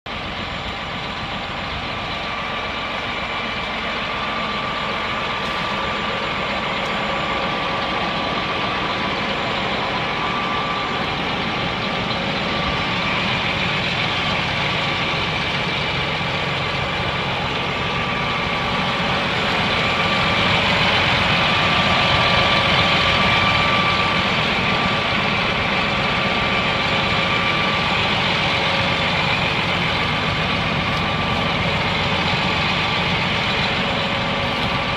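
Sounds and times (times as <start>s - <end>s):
tractor diesel engine idling: 0.0s - 34.9s
faint steady whine: 0.1s - 34.9s.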